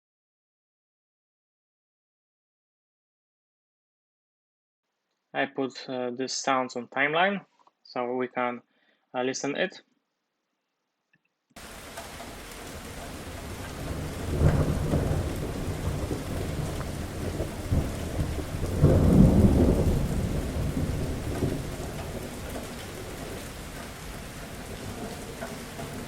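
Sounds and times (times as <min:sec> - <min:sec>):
rain hissing: 0:11.6 - 0:26.0
thunder rumbling: 0:11.6 - 0:26.0.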